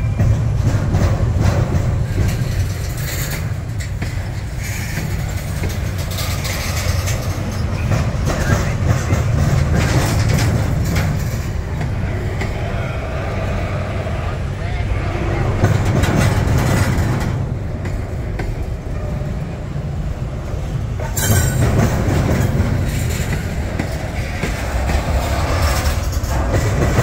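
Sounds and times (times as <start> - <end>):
train cars clicking and clanking: 0.0 - 27.0
train wheels rumbling on rails: 0.0 - 27.0.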